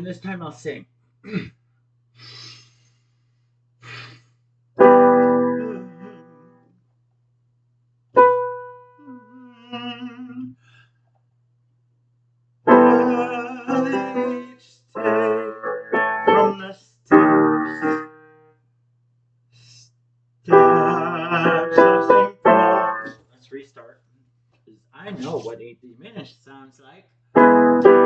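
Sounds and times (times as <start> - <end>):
soft breaths: 2.2 - 4.5
piano chords ringing out: 4.8 - 6.6, 8.2 - 9.3, 12.7 - 14.4, 15.0 - 18.4, 20.5 - 23.2, 27.4 - 28.0.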